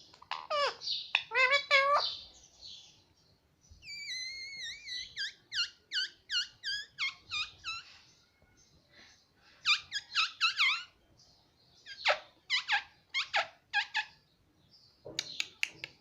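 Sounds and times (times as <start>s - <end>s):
parrot squeaky calls: 0.2s - 2.2s, 3.8s - 8.0s, 9.6s - 11.0s, 11.8s - 14.2s.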